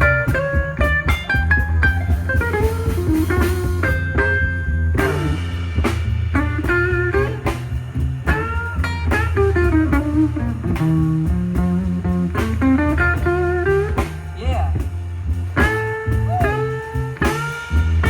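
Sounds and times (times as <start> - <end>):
bass line: 0.0 - 18.0
drum kit: 0.0 - 18.0
lead guitar bending notes: 0.0 - 18.0.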